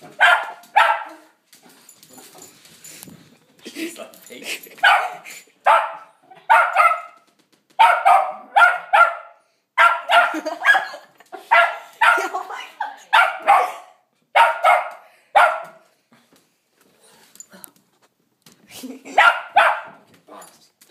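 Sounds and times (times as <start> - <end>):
dog barking: 0.1 - 1.4, 4.8 - 7.2, 7.8 - 12.4, 13.1 - 15.8, 19.1 - 20.1.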